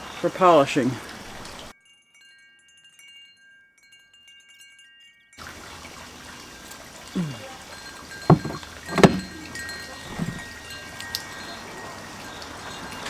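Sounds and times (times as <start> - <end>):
outdoor background hiss: 0.0 - 1.7, 5.4 - 13.0.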